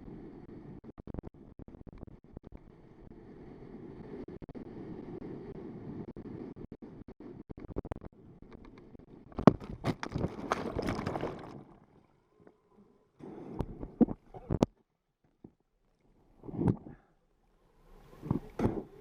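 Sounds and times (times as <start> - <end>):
water splashing: 9.5 - 12.2.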